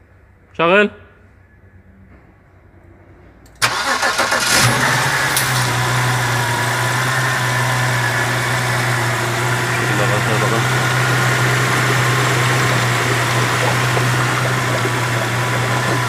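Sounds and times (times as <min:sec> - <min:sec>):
car engine cranking and starting: 0:03.5 - 0:16.0
car engine idling: 0:03.6 - 0:16.0.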